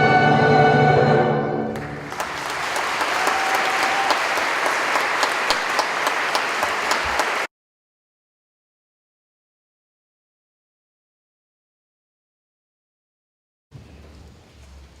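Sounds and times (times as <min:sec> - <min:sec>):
audience applauding: 0:01.7 - 0:07.5.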